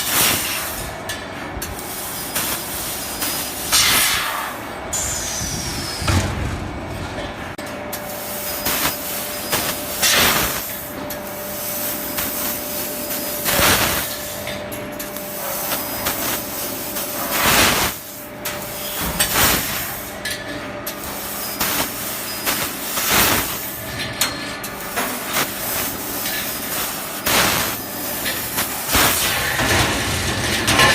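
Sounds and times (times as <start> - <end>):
loud hissing bursts: 3.2 - 6.1, 21.6 - 23.7, 28.6 - 29.5.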